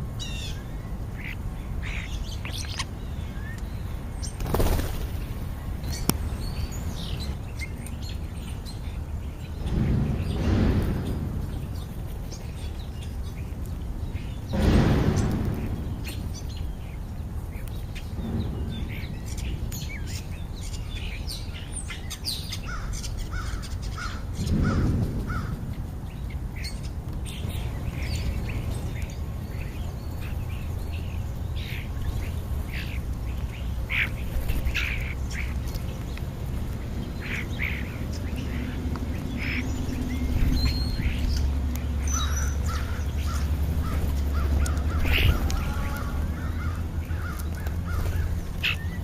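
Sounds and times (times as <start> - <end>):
birds chirping and calling: 0.0 - 49.0
steady low rumble: 3.1 - 22.0, 22.9 - 49.0
low whoosh: 14.5 - 21.0.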